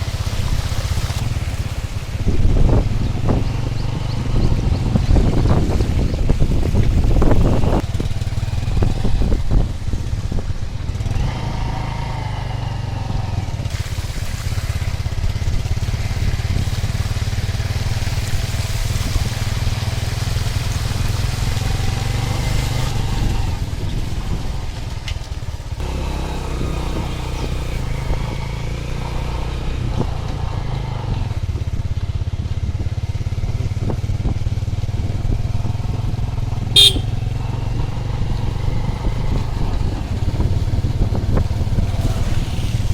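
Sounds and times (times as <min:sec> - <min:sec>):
vehicle engine running: 0:30.1 - 0:42.9.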